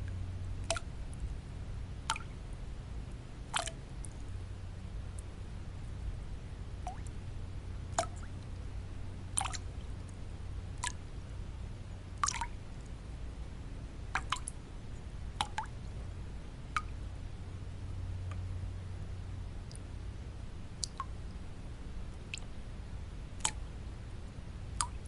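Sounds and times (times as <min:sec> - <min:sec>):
low white noise: 0:00.0 - 0:25.0
water drops plinking: 0:00.6 - 0:00.9, 0:02.1 - 0:02.3, 0:14.2 - 0:14.5.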